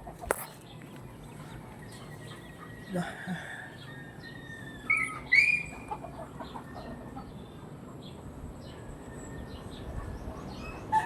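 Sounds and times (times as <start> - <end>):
chickens clucking softly: 0.0 - 7.4
chickens calling: 0.0 - 11.0.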